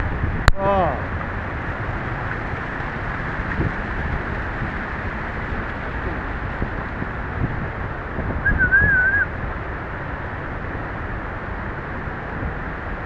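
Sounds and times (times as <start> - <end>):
outdoor rushing noise: 0.0 - 13.0
wind gusts on microphone: 0.0 - 13.0
warbling whistle-like call: 8.4 - 9.3.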